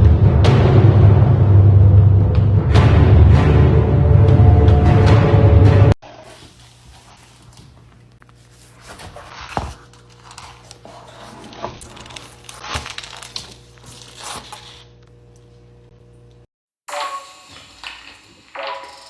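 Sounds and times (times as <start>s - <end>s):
rustling and scraping: 6.0s - 14.9s.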